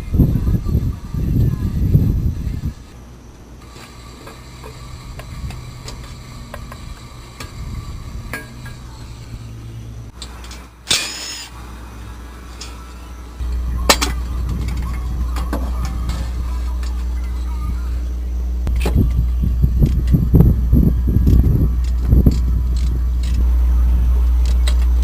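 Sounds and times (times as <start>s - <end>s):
low steady hum: 0.0s - 25.0s
short high squeak: 10.9s - 11.5s.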